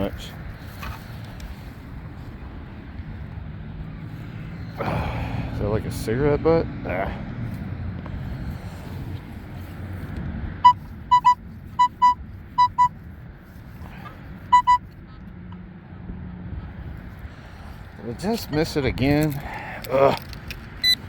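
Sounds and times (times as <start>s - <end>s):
pinpointer short high beeps: 10.6s - 12.9s, 14.5s - 14.9s.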